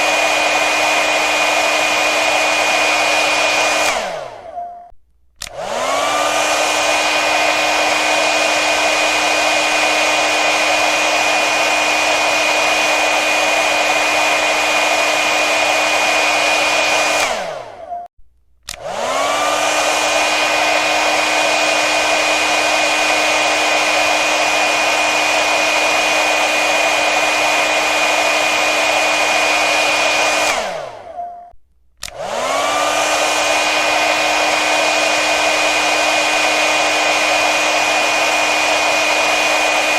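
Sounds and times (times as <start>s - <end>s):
hair dryer blowing: 0.0s - 4.6s, 5.4s - 18.0s, 18.6s - 31.2s, 32.0s - 39.9s.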